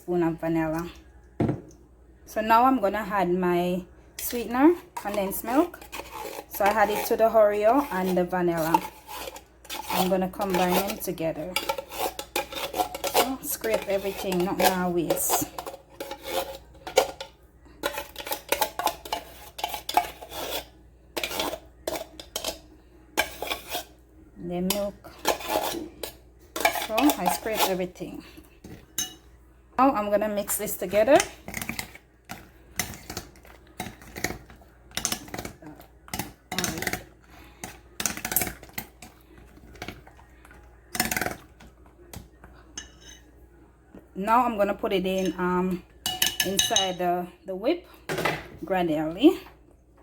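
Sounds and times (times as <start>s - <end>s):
utensil scraping metal tin: 4.2s - 17.2s, 17.8s - 22.6s, 23.2s - 24.0s, 24.6s - 28.1s.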